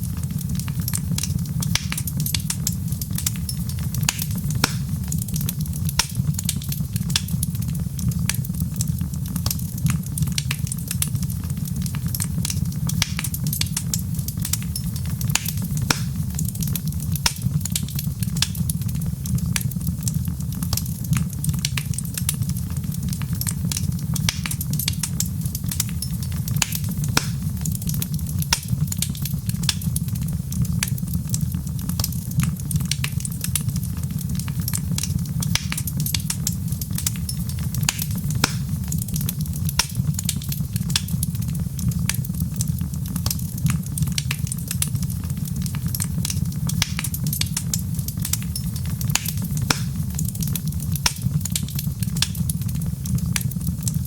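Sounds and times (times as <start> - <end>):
wood fire crackling: 0.0 - 54.0
sharp pops: 1.7 - 5.0, 6.0 - 7.4, 13.0 - 18.6, 24.2 - 29.9, 35.5 - 38.8, 39.8 - 41.2, 49.1 - 52.5.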